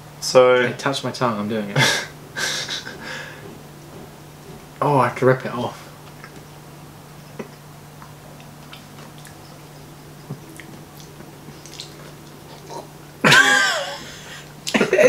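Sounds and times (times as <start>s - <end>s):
chewing with wet clicks: 6.0s - 6.5s, 7.2s - 13.0s.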